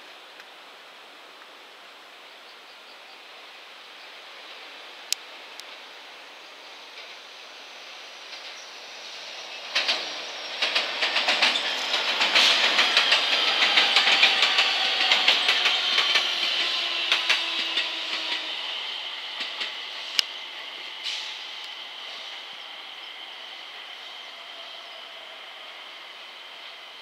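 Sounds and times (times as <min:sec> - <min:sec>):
electric train passing: 0:03.4 - 0:27.0
wheels clacking over rail joints: 0:09.5 - 0:20.4.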